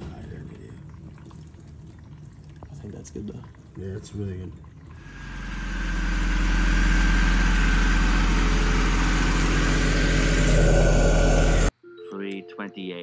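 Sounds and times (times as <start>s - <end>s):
car engine droning: 5.0s - 11.7s.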